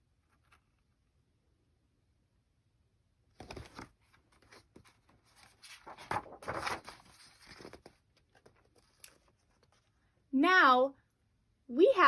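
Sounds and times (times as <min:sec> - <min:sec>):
rustling handling noise: 0:03.3 - 0:10.1.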